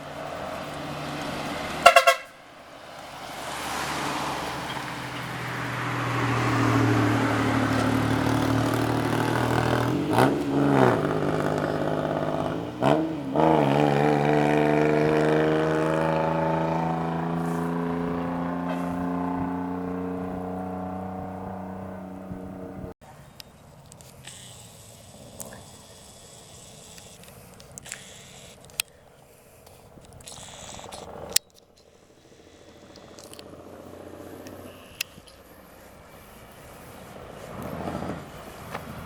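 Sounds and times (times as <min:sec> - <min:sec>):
truck engine passing: 0:00.0 - 0:28.6, 0:29.9 - 0:39.0
truck horn blast: 0:01.7 - 0:02.6.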